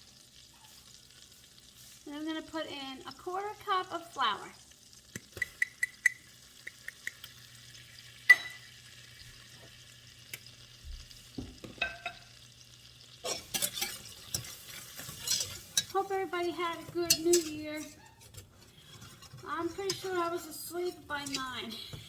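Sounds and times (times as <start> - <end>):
butter sizzling in a pot: 0.0 - 22.0
clinks and scrapes: 13.2 - 16.0, 17.0 - 21.6.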